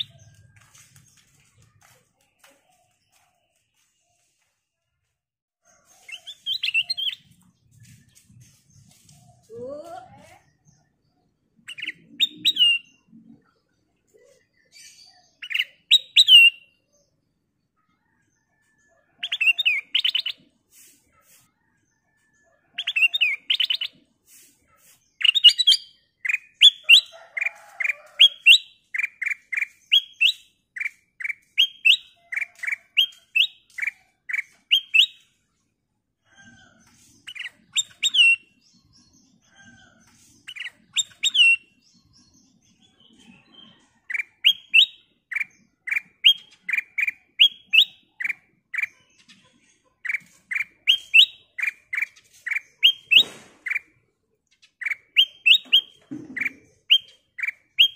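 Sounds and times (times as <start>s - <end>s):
bird singing whistled phrases: 54.9s - 56.0s.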